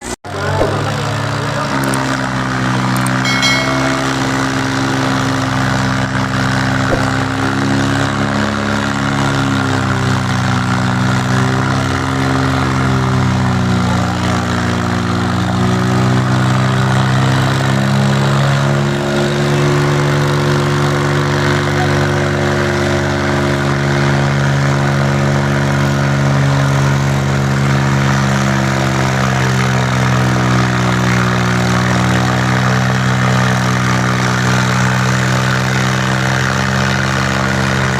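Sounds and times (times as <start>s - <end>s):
tractor engines running hard: 7.5s - 37.9s.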